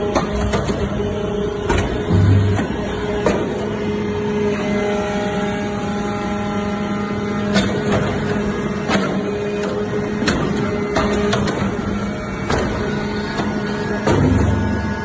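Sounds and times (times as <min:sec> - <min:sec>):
baling press machine hum: 0:00.0 - 0:15.0.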